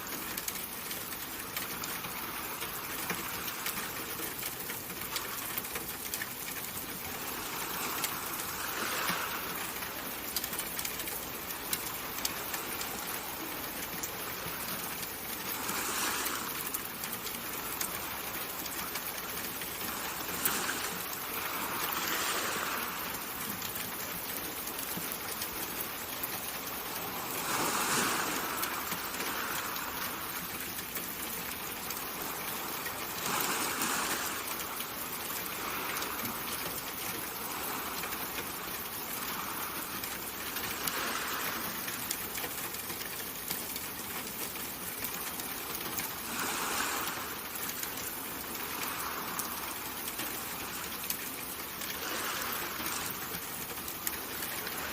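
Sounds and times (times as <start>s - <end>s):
water hissing: 26.2s - 30.4s, 31.8s - 41.8s, 46.1s - 54.9s.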